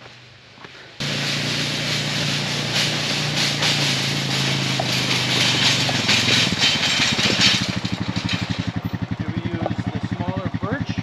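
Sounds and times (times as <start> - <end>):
engine running steadily: 0.0 - 11.0
loud hiss: 1.0 - 6.4.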